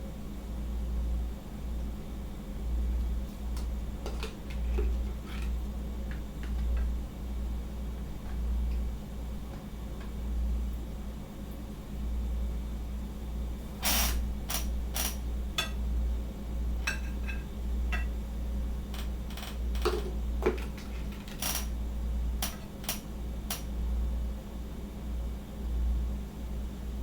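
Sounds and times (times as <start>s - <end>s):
steady low hum: 0.0s - 27.0s
utensils and dishes clinking: 16.8s - 18.1s.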